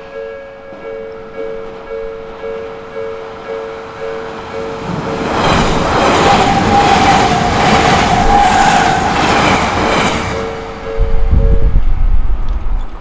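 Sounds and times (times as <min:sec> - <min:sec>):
two-tone crossing bell clanging: 0:00.0 - 0:06.1
electric train running with whine: 0:01.1 - 0:12.1.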